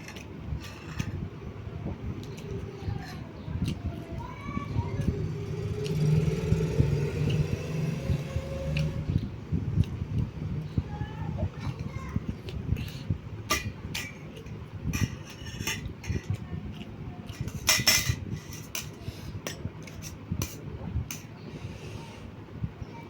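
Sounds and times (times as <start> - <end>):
cutlery clinking on a plate: 17.3 - 21.3.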